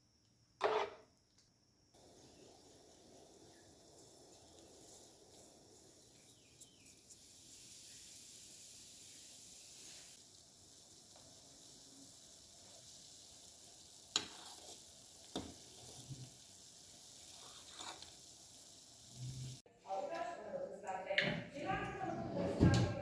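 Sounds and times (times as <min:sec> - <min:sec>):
food sizzling in hot oil: 0:02.0 - 0:19.7.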